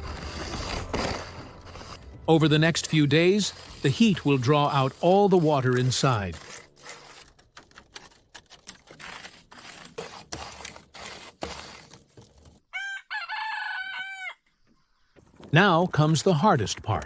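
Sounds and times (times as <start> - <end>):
rooster crowing: 12.7 - 14.4.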